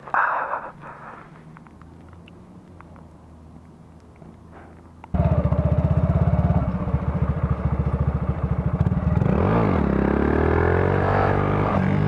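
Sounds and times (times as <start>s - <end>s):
small motorcycle engine revving: 5.1s - 12.0s.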